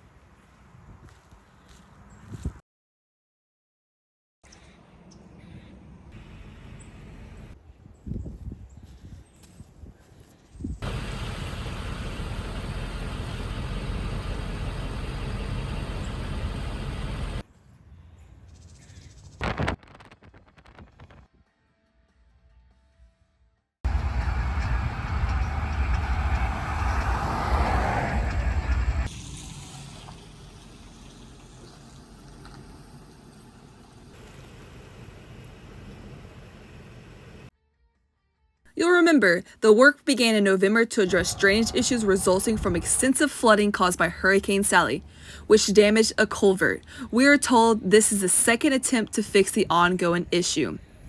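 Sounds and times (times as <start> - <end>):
vehicle engine rumble: 10.6 - 17.5, 23.9 - 37.5, 41.0 - 51.0
vehicle rumbling past: 23.9 - 34.6
trickle of running water: 29.1 - 34.5.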